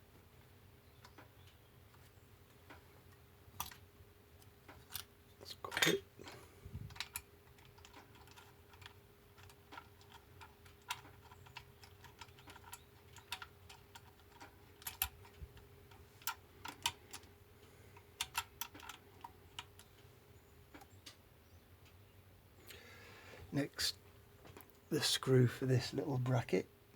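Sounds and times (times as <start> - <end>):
faint steady hum: 0.0 - 26.9
hand tools clicking and tapping: 4.4 - 20.0.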